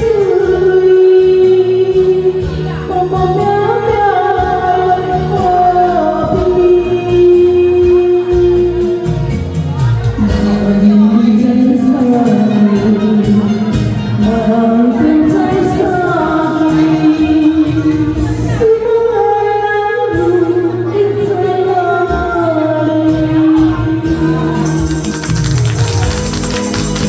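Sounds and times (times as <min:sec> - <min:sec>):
person singing into a microphone: 0:00.0 - 0:25.5
karaoke backing track: 0:00.0 - 0:27.0
tambourine shaking: 0:24.6 - 0:27.0.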